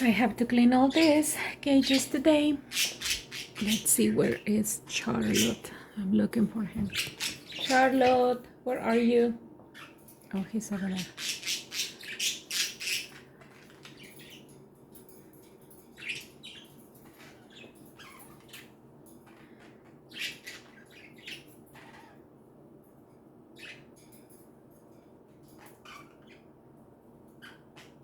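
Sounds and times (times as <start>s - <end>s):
budgerigars chirping and squawking: 0.8s - 5.7s, 6.8s - 9.1s, 9.7s - 10.1s, 10.7s - 14.5s, 15.9s - 22.2s, 23.5s - 24.0s, 25.5s - 26.5s, 27.3s - 28.0s.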